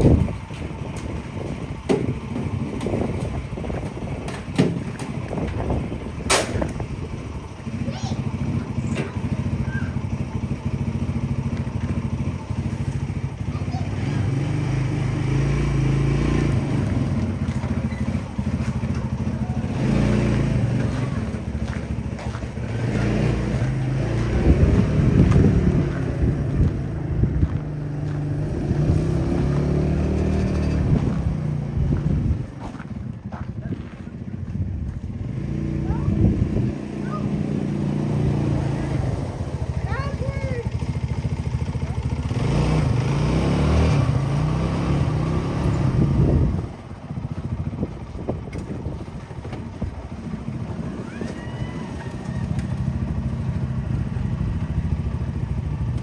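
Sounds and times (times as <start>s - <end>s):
vehicle engine humming: 0.0s - 56.0s.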